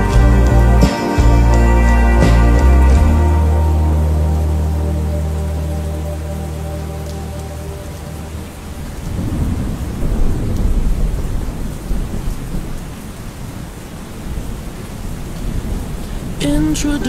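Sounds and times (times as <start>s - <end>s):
steady rain: 0.0s - 17.0s
rolling thunder: 8.4s - 13.0s.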